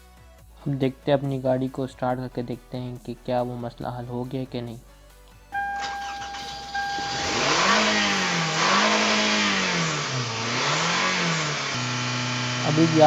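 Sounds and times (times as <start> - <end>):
car engine revving: 5.5 - 13.0.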